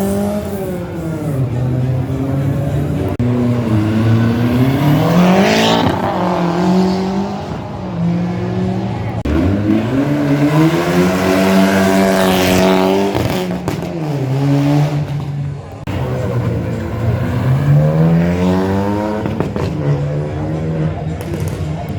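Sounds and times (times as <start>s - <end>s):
car engine revving hard: 0.0s - 21.3s.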